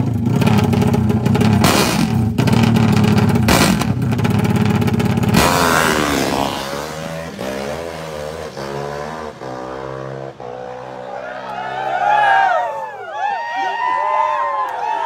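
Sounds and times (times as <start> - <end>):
drag bike engine revving: 0.0 - 11.0.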